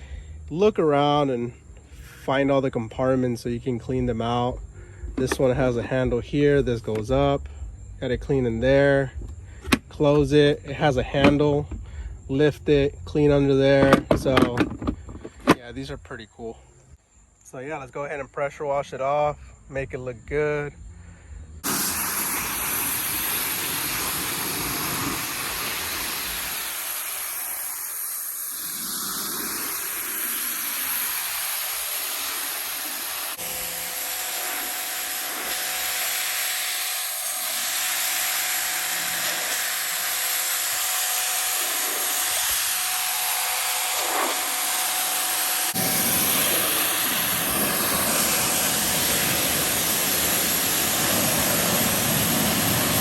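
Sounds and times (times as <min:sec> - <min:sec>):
pressure washer spraying: 0:21.6 - 0:53.0.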